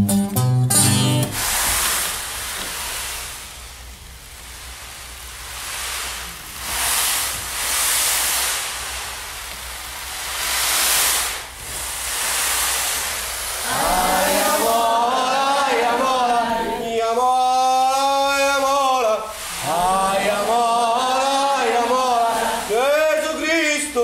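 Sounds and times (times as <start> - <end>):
sea waves washing in and out: 10.1 - 16.9, 19.0 - 22.8.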